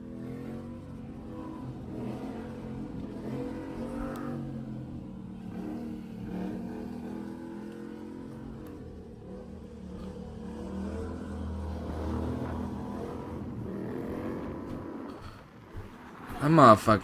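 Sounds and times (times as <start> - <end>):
car engine revving hard: 0.0 - 17.0.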